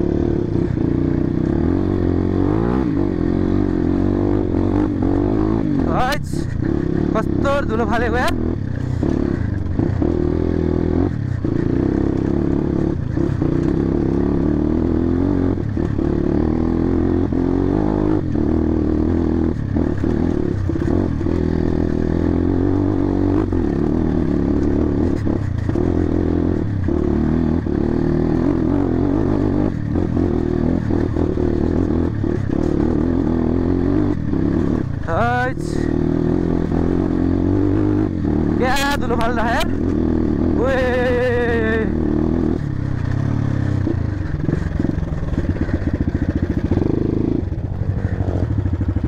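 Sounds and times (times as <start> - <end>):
dirt bike engine running: 0.0 - 49.0
bike rattling over rough ground: 42.8 - 49.0.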